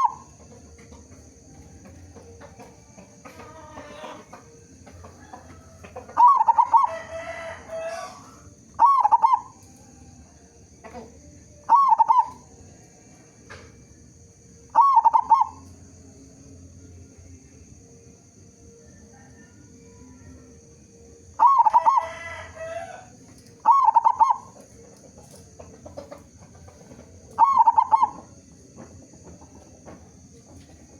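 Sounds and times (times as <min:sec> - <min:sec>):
dove cooing: 0:00.0 - 0:09.6, 0:10.9 - 0:12.5, 0:14.7 - 0:15.6, 0:21.4 - 0:29.9.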